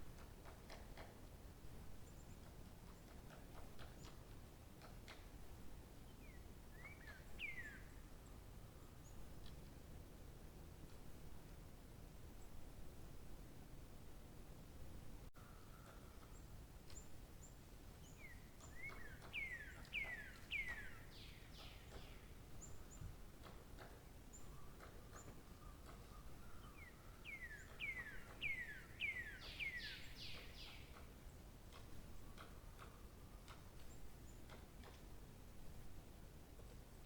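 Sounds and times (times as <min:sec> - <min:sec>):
faint bird chirps: 0:06.2 - 0:09.3, 0:15.4 - 0:23.1, 0:24.3 - 0:31.4
songbird whistling: 0:18.2 - 0:22.0, 0:26.6 - 0:30.8.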